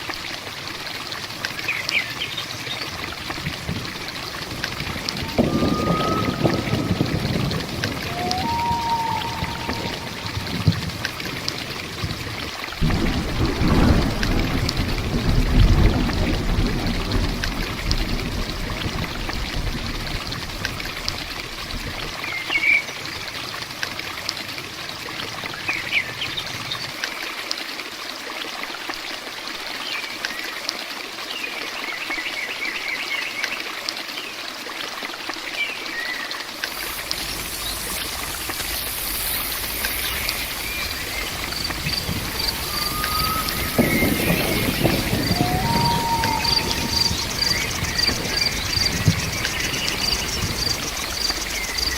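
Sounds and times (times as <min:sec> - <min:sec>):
heavy rain: 0:00.0 - 0:30.5, 0:31.8 - 0:51.9
water trickling and running: 0:00.0 - 0:51.9
low rumble: 0:04.3 - 0:11.5, 0:36.6 - 0:51.9.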